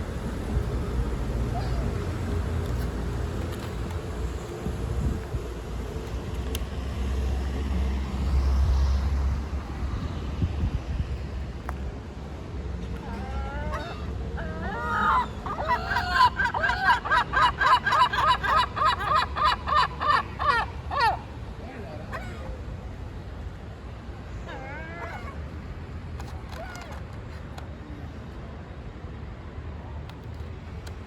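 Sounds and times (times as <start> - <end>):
low wind or traffic rumble: 0.0 - 31.0
gull crying: 13.0 - 21.3.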